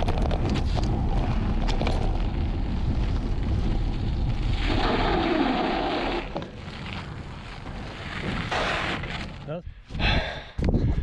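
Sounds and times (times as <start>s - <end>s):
wind buffeting microphone: 9.6s - 11.0s.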